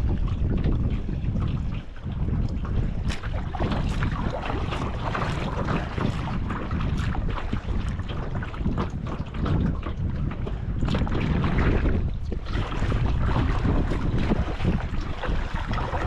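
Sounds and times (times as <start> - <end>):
choppy water splashing: 0.0 - 16.0
wind buffeting microphone: 0.0 - 16.0.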